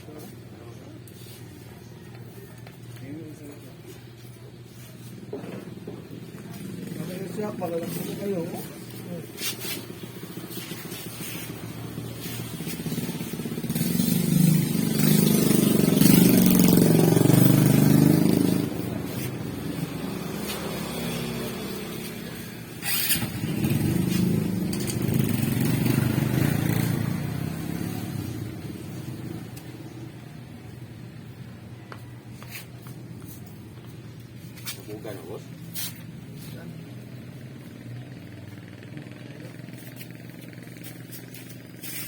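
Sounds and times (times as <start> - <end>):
small motorcycle engine running: 9.8 - 29.5, 36.6 - 42.0.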